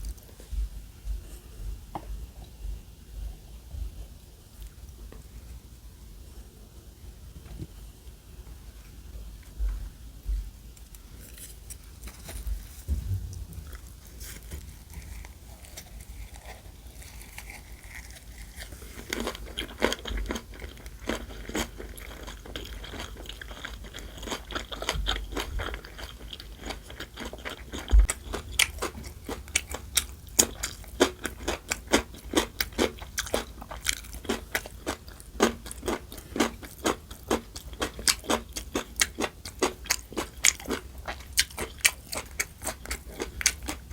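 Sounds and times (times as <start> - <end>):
crunchy chewing: 10.8 - 43.9.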